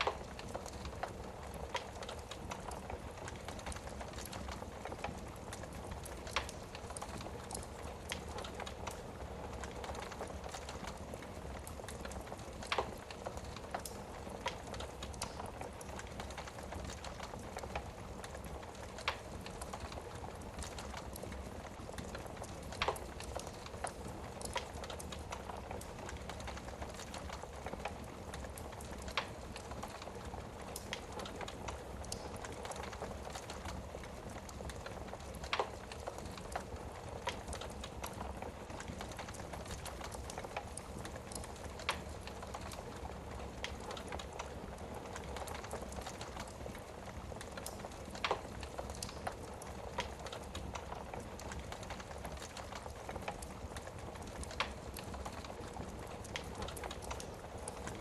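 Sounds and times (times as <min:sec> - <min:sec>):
fire popping: 0:00.0 - 0:58.0
wood fire crackling: 0:00.0 - 0:58.0.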